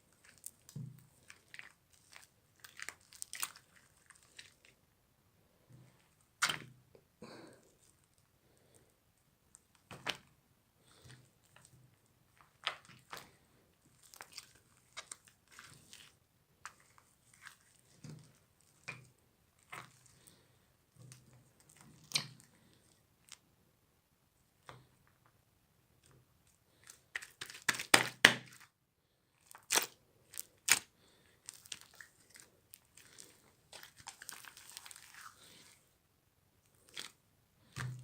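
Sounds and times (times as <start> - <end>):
crunchy slime crackling and popping: 0.1 - 4.8, 12.4 - 20.4, 26.7 - 28.7, 29.4 - 35.8, 36.7 - 38.0.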